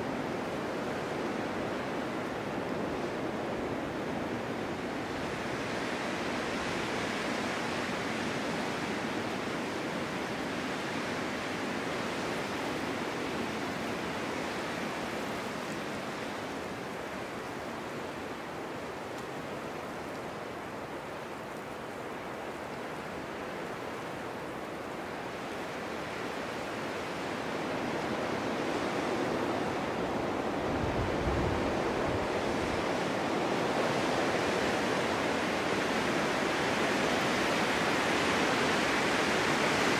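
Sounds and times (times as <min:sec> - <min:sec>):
low rumbling wind gust: 0:00.0 - 0:39.9
snowstorm wind rushing: 0:23.0 - 0:39.9.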